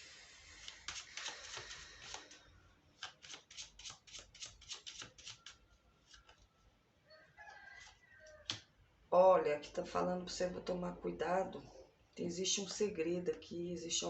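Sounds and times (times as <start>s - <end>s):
cards being shuffled: 0.5s - 2.4s, 3.0s - 6.5s.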